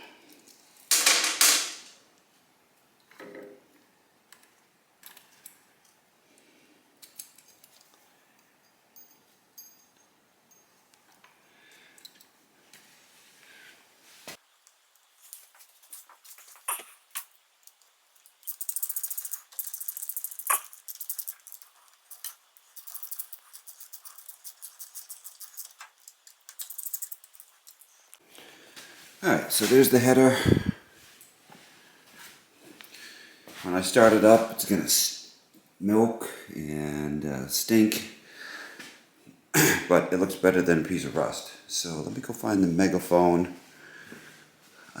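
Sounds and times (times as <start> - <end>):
metallic clinks of hand tools: 8.6 - 10.8
ratchet wrench clicking: 18.5 - 21.6.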